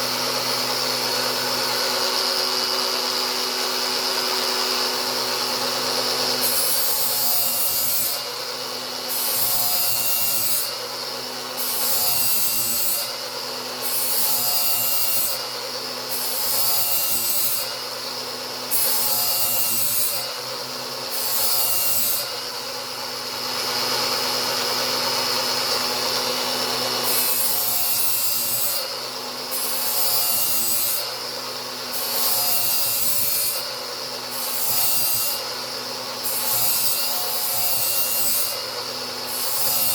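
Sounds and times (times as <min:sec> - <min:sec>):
angle grinder grinding metal: 0:00.0 - 0:39.9.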